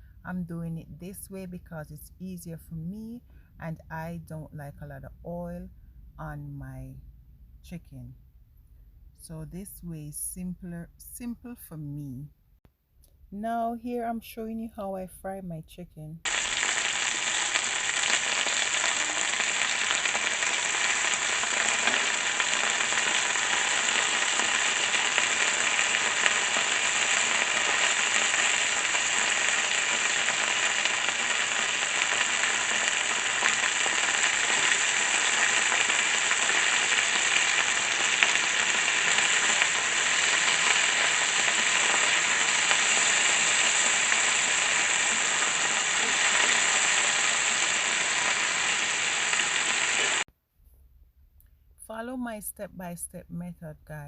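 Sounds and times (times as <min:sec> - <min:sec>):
chicken sizzling in oil: 0:16.2 - 0:50.3.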